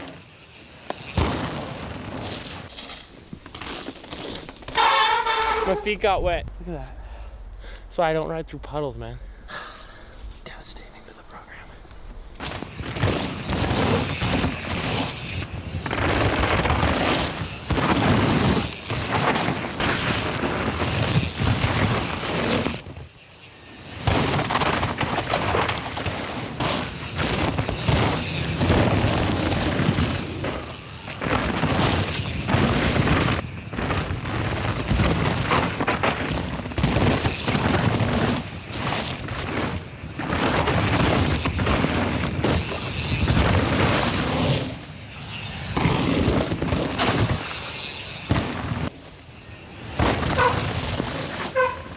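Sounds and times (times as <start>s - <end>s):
hard bike impacts: 0.0s - 5.8s, 11.9s - 51.9s
bike tyres tearing through mud: 0.0s - 6.8s, 11.9s - 51.9s.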